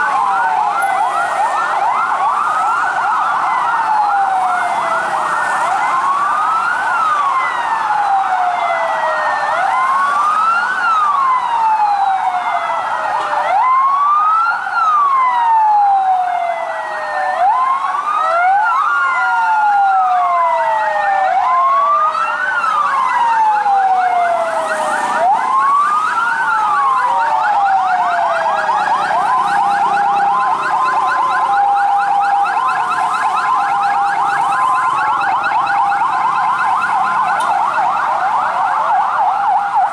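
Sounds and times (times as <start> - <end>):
fast yelping siren: 0.0 - 39.9
two-tone hi-lo siren: 0.0 - 39.9
wailing siren: 0.0 - 39.9.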